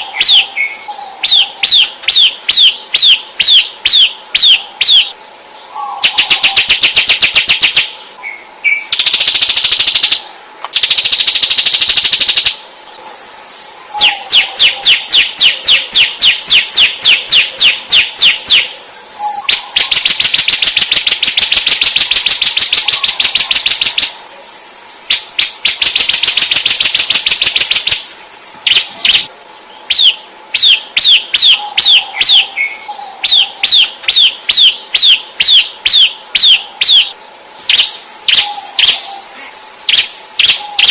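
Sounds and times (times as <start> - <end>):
songbird singing varied song: 0.0 - 40.9
down-slurred bird whistles: 10.9 - 29.3, 29.9 - 40.9.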